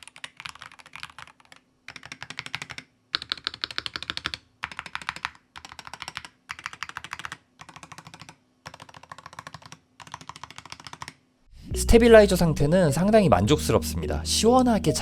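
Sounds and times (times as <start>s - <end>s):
keyboard typing: 0.0s - 11.2s.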